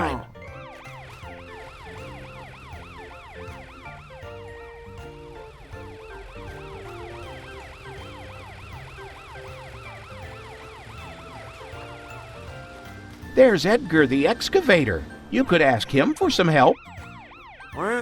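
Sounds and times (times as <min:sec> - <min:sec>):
cartoon police siren yelping: 0:00.0 - 0:12.3, 0:16.2 - 0:18.0
background music: 0:00.0 - 0:18.0.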